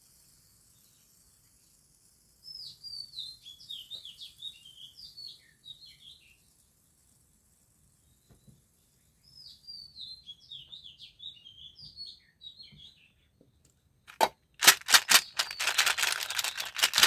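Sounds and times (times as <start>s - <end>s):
small birds chirping: 14.8s - 17.0s.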